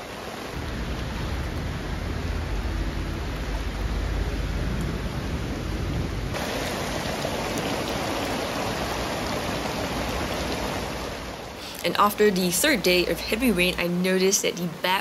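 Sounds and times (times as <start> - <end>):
heavy rain on grass and tent: 0.0 - 15.0.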